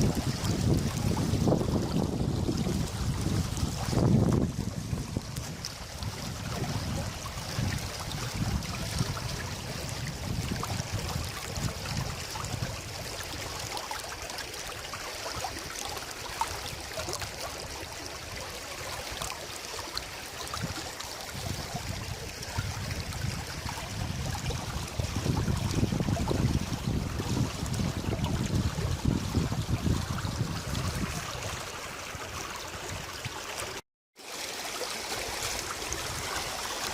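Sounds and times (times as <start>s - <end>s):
wind buffeting microphone: 0.0s - 13.5s, 20.6s - 33.4s
river water rushing: 0.0s - 26.4s, 27.0s - 36.9s.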